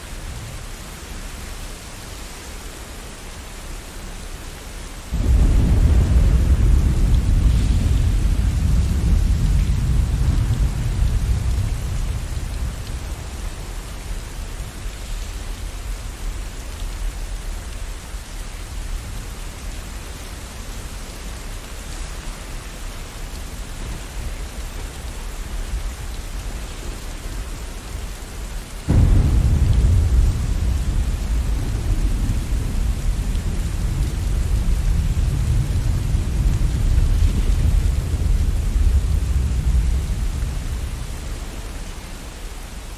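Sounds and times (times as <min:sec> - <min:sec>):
steady rain: 0:00.0 - 0:42.9
loud thunderclap: 0:05.1 - 0:13.8, 0:28.9 - 0:41.2
thunder rumbling: 0:05.1 - 0:16.3, 0:28.9 - 0:41.9.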